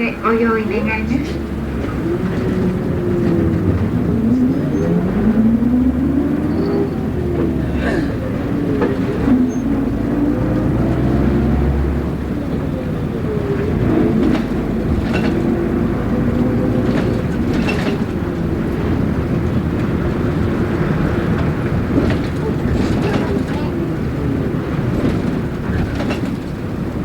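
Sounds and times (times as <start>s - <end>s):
bus engine running: 0.0s - 27.0s
road rumble: 0.0s - 27.0s
body rattles: 16.6s - 27.0s.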